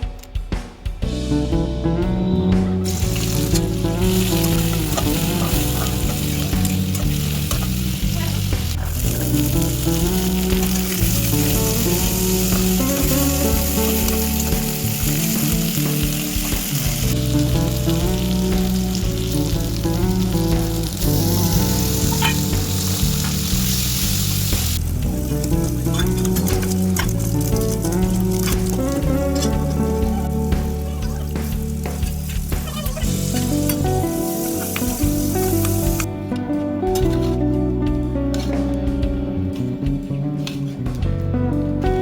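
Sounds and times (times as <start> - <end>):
background music: 0.0 - 42.0
food sizzling in a pan: 2.8 - 36.1.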